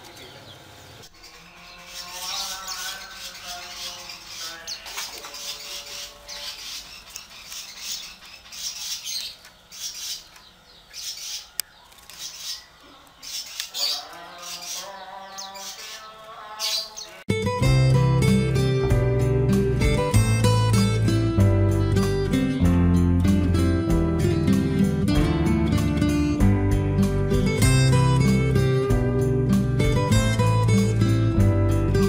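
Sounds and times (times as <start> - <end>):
bird squawking and chirping: 0.1 - 17.2.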